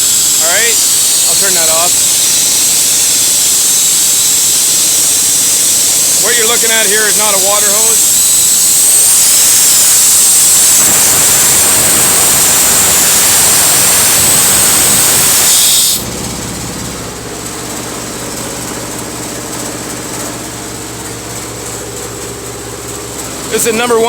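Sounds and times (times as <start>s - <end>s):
air and water hissing from valve: 0.0s - 16.1s
steady mechanical hum: 0.0s - 24.0s.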